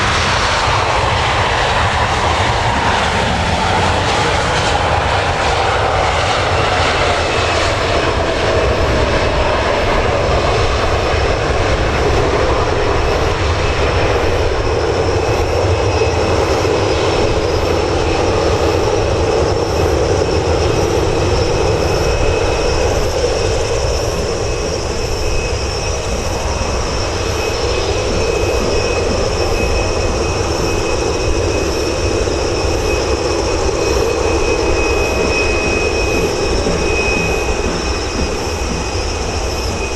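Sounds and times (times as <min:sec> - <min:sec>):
jet engine whine: 0:00.0 - 0:39.9
jet engines roaring: 0:00.0 - 0:39.9
high whistle: 0:19.6 - 0:39.9.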